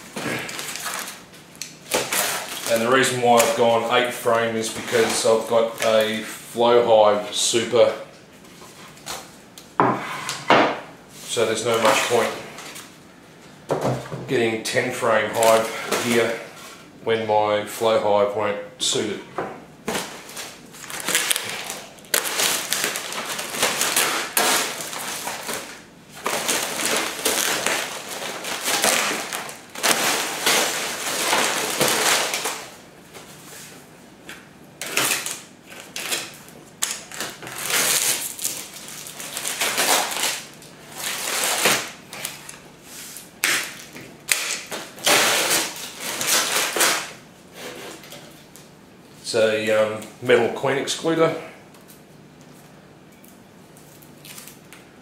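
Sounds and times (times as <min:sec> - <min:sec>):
packaging rustling and crinkling: 0:00.0 - 0:03.9, 0:19.9 - 0:33.7, 0:34.8 - 0:47.1, 0:53.7 - 0:54.8.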